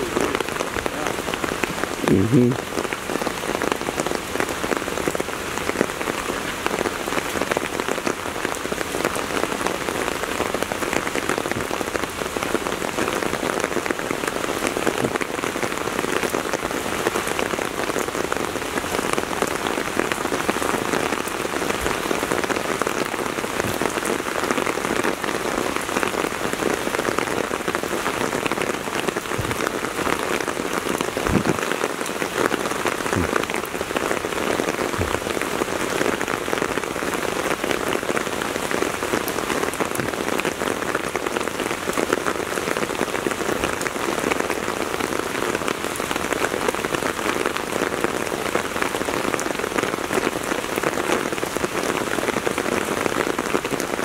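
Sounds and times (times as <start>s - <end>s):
heavy rain on ground and vehicles: 0.0s - 54.0s
short dull knocks: 31.2s - 31.6s.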